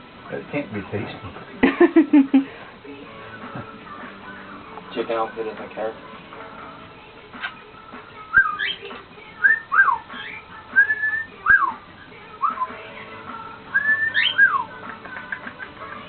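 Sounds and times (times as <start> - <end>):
cockatiel whistling: 8.3 - 8.8, 9.4 - 11.8, 12.4 - 12.8, 13.7 - 14.8.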